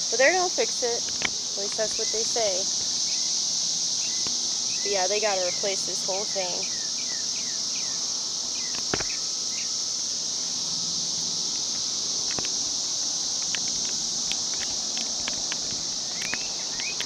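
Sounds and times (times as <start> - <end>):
cicada chorus drone: 0.0 - 17.0
bird chirps: 16.1 - 17.0.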